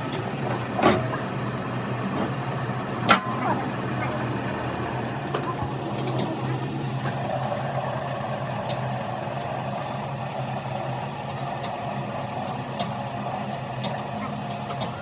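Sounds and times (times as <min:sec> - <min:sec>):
heavy vehicle engine idling: 0:00.0 - 0:15.0.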